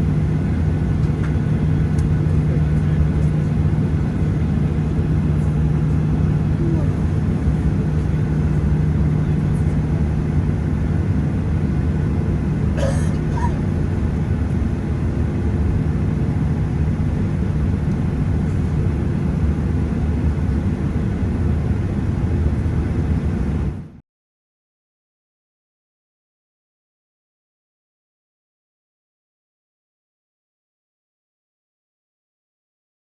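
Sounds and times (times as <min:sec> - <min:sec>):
steady hum: 0:00.0 - 0:23.9
aircraft cabin engine rumble: 0:00.0 - 0:24.0.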